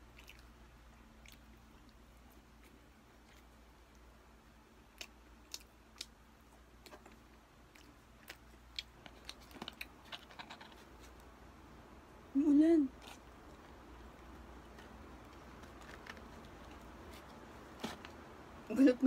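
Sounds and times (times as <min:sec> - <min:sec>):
chewing clicks: 0:04.9 - 0:06.2.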